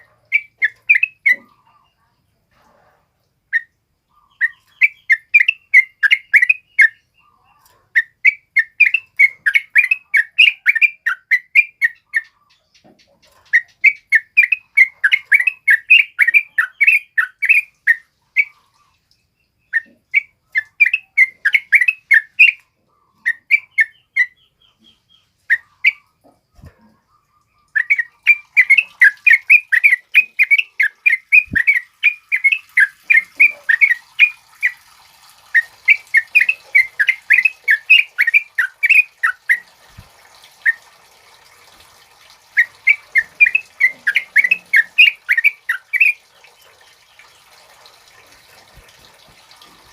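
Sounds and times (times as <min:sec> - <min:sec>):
bird singing chattering phrases: 0:03.6 - 0:18.6, 0:27.7 - 0:34.8, 0:35.6 - 0:39.7, 0:42.6 - 0:46.2.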